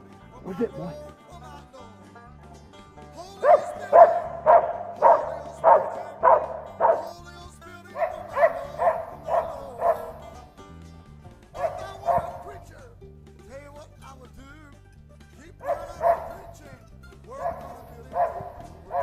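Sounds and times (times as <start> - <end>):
background music: 0.0 - 19.0
dog barking: 3.4 - 10.5, 11.6 - 12.6, 15.6 - 16.7, 17.3 - 19.0.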